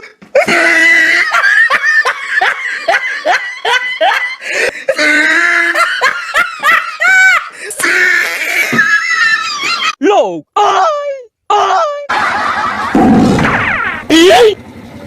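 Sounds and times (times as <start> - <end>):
person laughing hard: 0.0 - 10.0, 11.9 - 14.0
person squealing: 0.4 - 1.4, 4.9 - 6.0, 7.7 - 9.9, 10.6 - 12.1.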